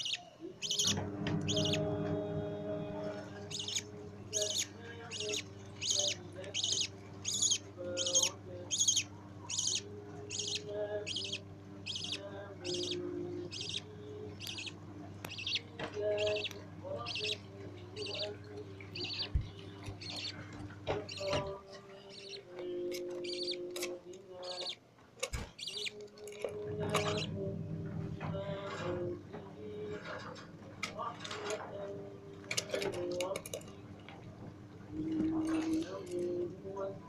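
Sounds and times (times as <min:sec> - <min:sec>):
chicks begging with raspy cheeps: 0:00.0 - 0:01.9, 0:03.5 - 0:17.4, 0:18.0 - 0:20.5, 0:23.2 - 0:23.6.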